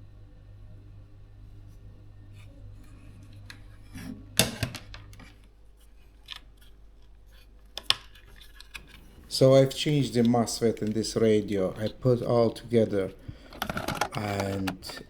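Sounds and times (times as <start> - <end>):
low electrical hum: 0.0 - 15.0
small tools clicking and clattering: 13.4 - 15.0.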